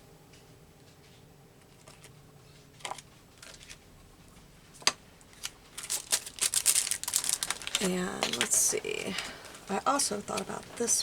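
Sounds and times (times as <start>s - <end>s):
paper rustling: 1.6s - 3.9s, 4.8s - 9.6s.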